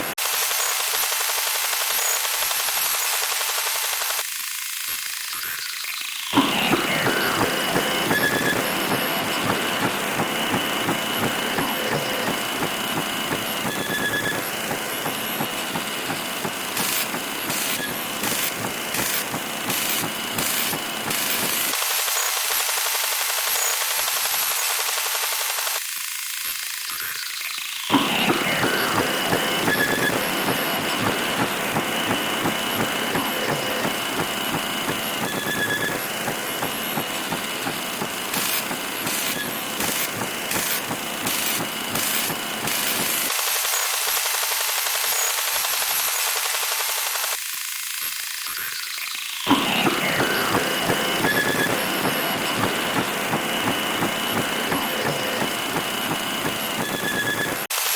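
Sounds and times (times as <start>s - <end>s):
rapid pulsing buzz: 6.4s - 21.8s, 27.9s - 43.3s, 49.5s - 57.7s.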